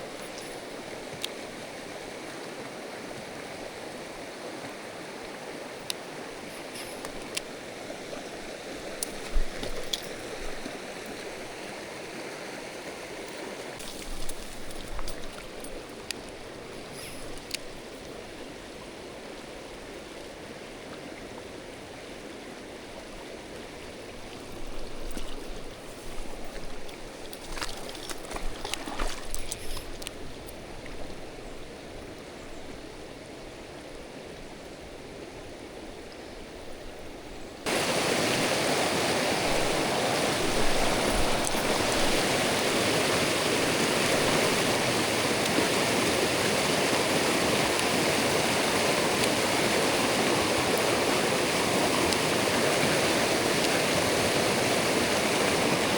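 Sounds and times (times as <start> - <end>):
stream water rushing over rocks: 0.0 - 31.4, 37.6 - 55.9.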